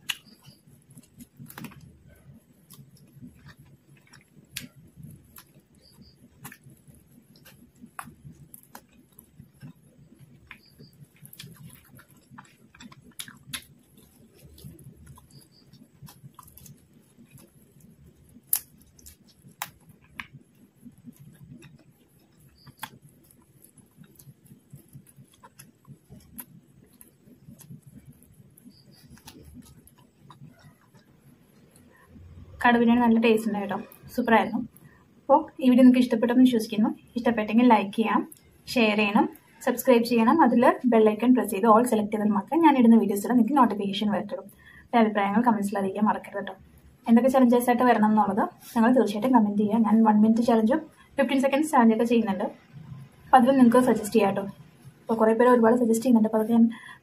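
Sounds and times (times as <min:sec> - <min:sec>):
sharp mouth clicks: 0:00.0 - 0:01.8, 0:10.4 - 0:20.4
person chewing food: 0:00.0 - 0:32.6.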